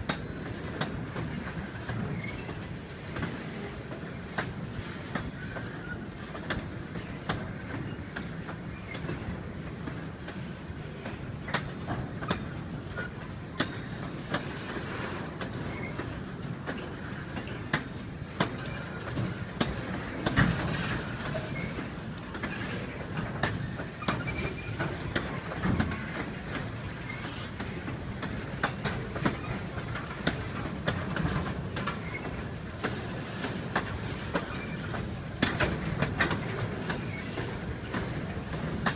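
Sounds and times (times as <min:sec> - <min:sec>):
rail joint clicks: 0:00.0 - 0:38.9
train wheels rumbling on rails: 0:00.0 - 0:38.9
faint wheel squeaks: 0:00.1 - 0:03.0, 0:05.3 - 0:07.0, 0:12.5 - 0:13.2, 0:15.5 - 0:16.6, 0:18.6 - 0:19.3, 0:24.0 - 0:24.8, 0:34.4 - 0:35.0, 0:36.9 - 0:38.0.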